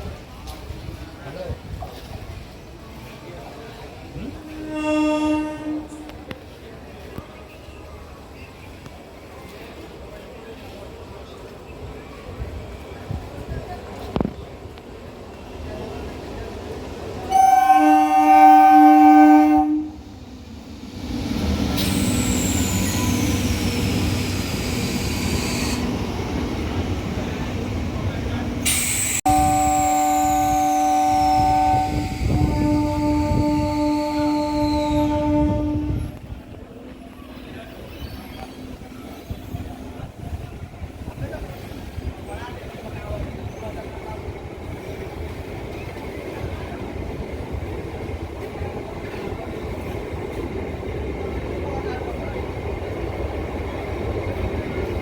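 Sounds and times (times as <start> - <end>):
train wheels rumbling on track: 0.0 - 55.0
high hiss: 20.6 - 26.1, 28.6 - 29.8.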